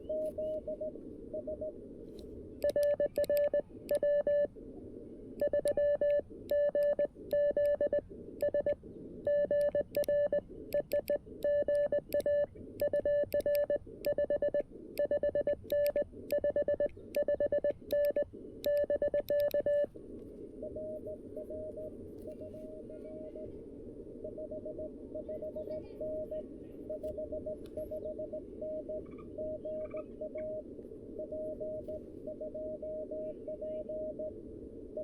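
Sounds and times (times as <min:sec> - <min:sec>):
faint distant morse signal: 0:00.0 - 0:35.0
receiver hiss: 0:00.0 - 0:35.0
morse code tone: 0:02.6 - 0:04.5, 0:05.4 - 0:19.9, 0:24.3 - 0:30.6.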